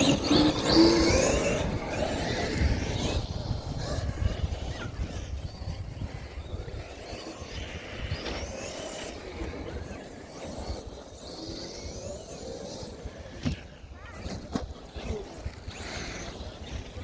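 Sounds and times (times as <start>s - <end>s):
wind rumbling on microphone: 0.0s - 12.3s
rc car motor whine: 0.0s - 17.0s.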